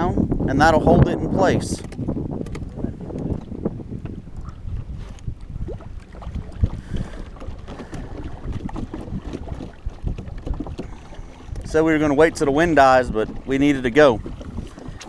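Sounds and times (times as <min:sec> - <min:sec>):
wind buffeting the microphone: 0:00.0 - 0:15.0
light knocks from boat gear: 0:01.7 - 0:05.3.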